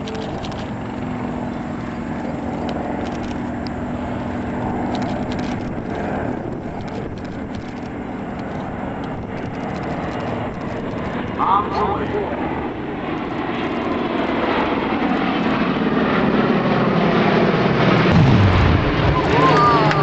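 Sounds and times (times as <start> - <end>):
propeller plane engine drone: 0.0 - 20.0
low hum: 17.6 - 20.0.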